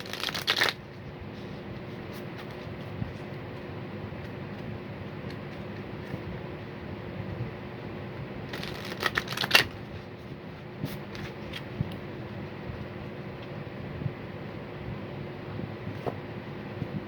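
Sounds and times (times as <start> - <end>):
cards being shuffled: 0.0 - 0.8, 8.5 - 9.8
steady low hum: 0.0 - 17.0.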